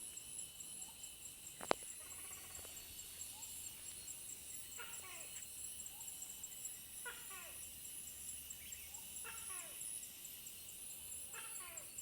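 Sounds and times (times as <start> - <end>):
faint regular ticks: 1.5 - 3.0.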